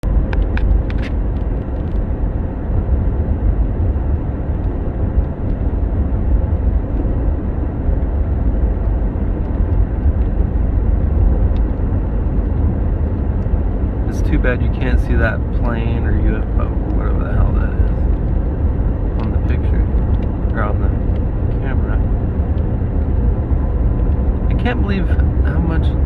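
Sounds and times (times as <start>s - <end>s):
car rumble from inside cabin: 0.0s - 26.0s.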